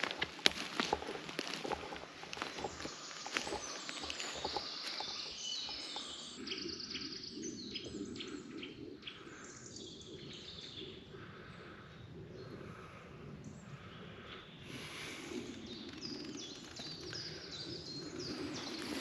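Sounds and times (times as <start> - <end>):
twigs clicking: 0.0 - 6.1
footsteps on forest floor: 0.0 - 6.4
birds singing and chirping: 0.0 - 19.0.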